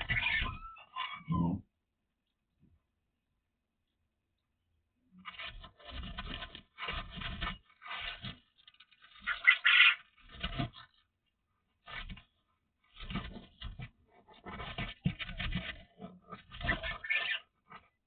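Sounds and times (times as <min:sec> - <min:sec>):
scraping and rustling: 0:05.2 - 0:18.0.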